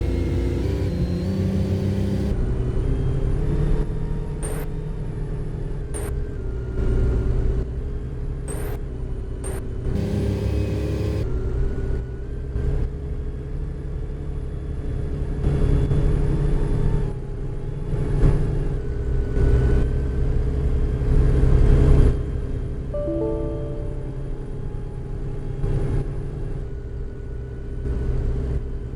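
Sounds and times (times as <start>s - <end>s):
bus engine and road rumble: 0.0s - 22.4s.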